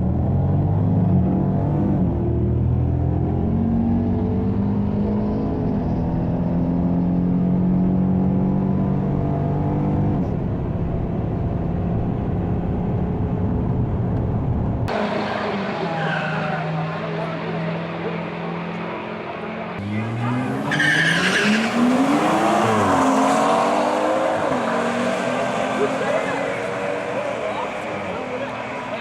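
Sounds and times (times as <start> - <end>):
car engine running: 9.1 - 15.5
tires squealing: 14.9 - 18.2, 19.8 - 29.0.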